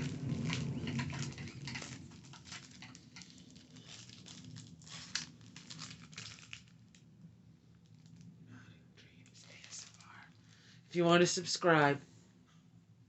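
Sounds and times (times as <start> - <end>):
tapping on small items: 0.0 - 4.4.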